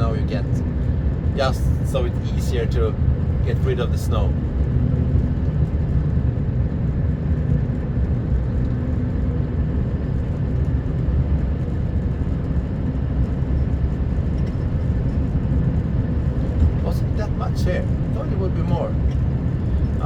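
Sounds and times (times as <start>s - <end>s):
road noise: 0.0s - 20.0s
truck diesel engine running: 0.0s - 20.0s.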